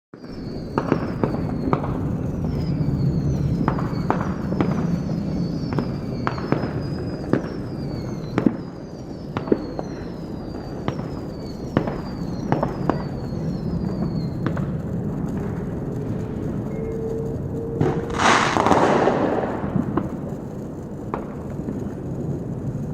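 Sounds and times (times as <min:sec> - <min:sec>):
falling firework whistles: 0:00.2 - 0:22.9
firework bangs: 0:00.2 - 0:22.9
low rumble: 0:11.0 - 0:22.9.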